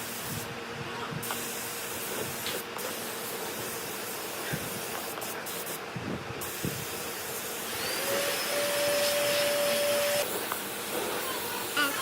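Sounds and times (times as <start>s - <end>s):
small motor whining: 7.6s - 10.3s.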